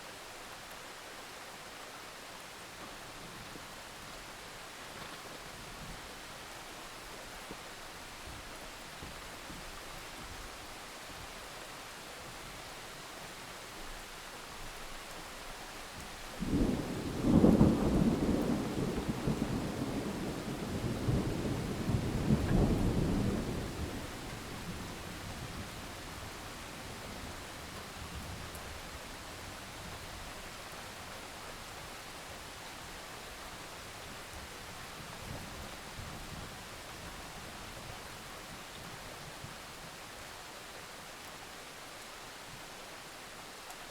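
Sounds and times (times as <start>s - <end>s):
steady rain hiss: 0.0s - 43.9s
thunder rumbling: 16.4s - 28.2s
distant thunder rumbles: 16.4s - 28.6s.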